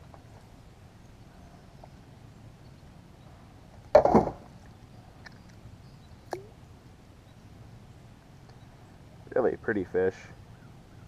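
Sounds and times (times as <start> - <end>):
faint steady background noise: 0.0 - 11.0.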